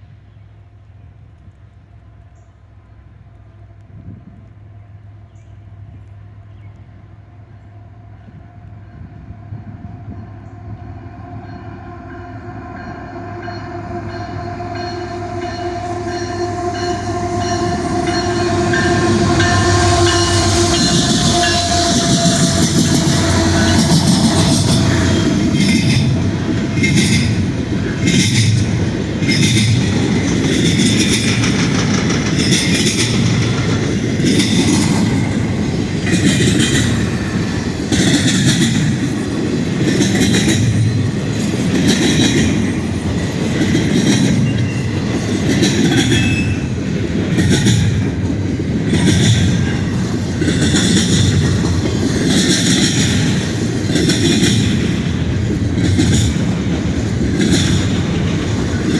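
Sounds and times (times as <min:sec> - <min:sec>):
freight train rumbling past: 0:00.0 - 0:58.9
wheels clacking over rail joints: 0:17.4 - 0:58.9.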